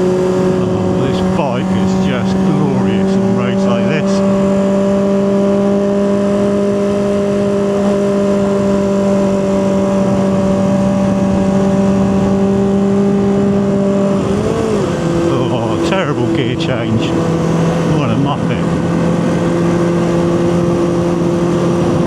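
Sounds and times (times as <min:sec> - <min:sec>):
motorcycle engine running: 0:00.0 - 0:22.0
rider speaking: 0:00.5 - 0:04.6, 0:14.2 - 0:19.0.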